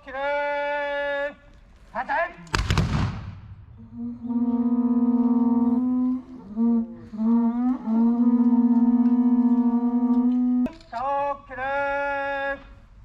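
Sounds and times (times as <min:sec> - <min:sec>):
horn-like wind instrument notes: 0:03.8 - 0:10.7.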